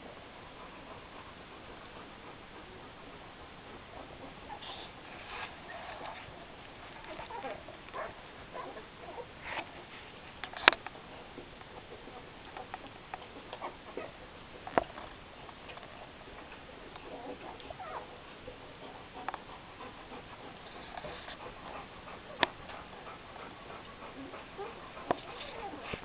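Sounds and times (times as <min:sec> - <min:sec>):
puppies squeaking and whimpering: 0:07.1 - 0:09.3, 0:17.1 - 0:18.2, 0:24.2 - 0:26.0.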